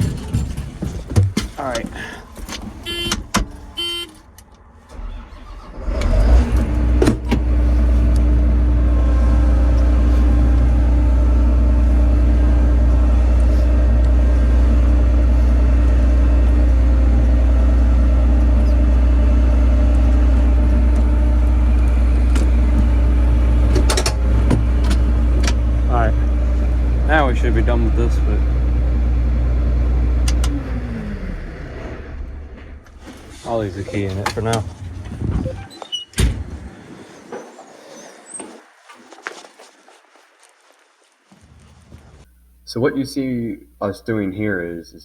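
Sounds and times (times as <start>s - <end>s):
engine cranking and running: 0.0s - 39.4s
short beeps: 2.9s - 3.2s, 3.8s - 4.1s.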